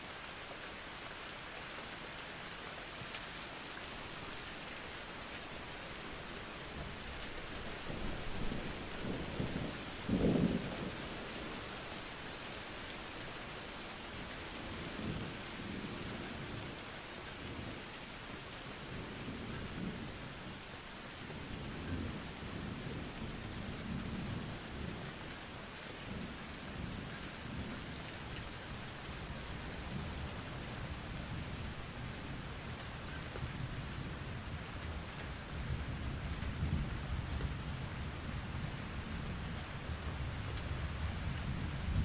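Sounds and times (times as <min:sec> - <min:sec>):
steady rain: 0:00.0 - 0:42.0
thunder rumbling: 0:06.4 - 0:12.1, 0:26.1 - 0:42.0.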